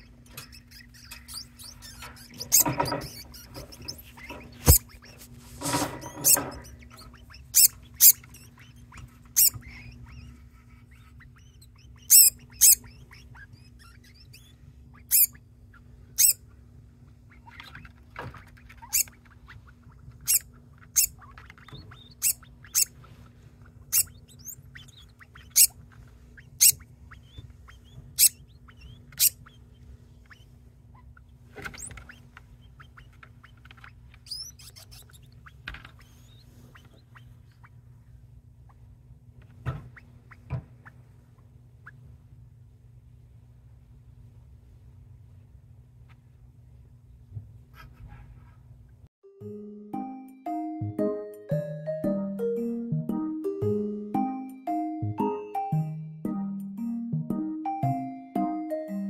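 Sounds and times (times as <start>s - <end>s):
degu squeaking: 0.0s - 16.5s, 17.2s - 37.9s, 39.6s - 42.1s.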